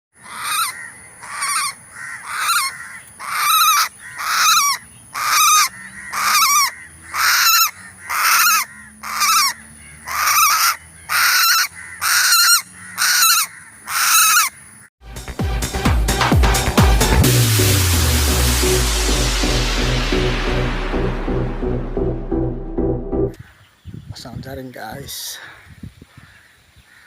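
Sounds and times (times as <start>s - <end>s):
bird honking call: 0.2s - 14.8s.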